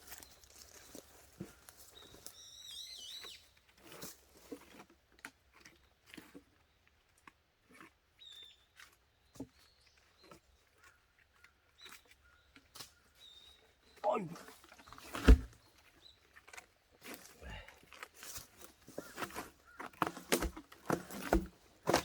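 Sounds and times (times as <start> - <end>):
soft knocks and rustles: 14.9 - 15.6.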